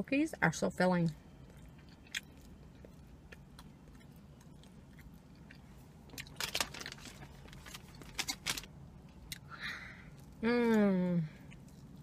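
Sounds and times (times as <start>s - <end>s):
mouth chewing crunchy cookie: 1.1s - 6.8s, 10.1s - 12.0s.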